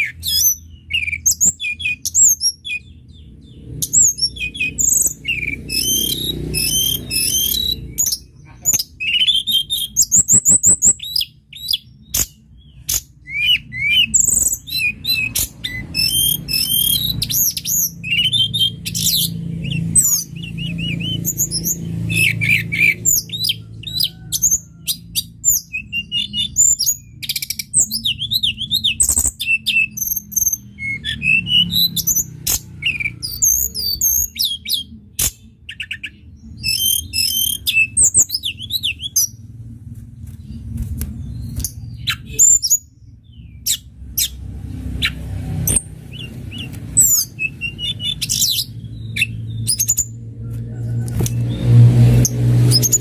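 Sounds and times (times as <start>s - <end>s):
songbird chirping and trilling: 0.0s - 53.0s
low hum: 38.4s - 42.1s.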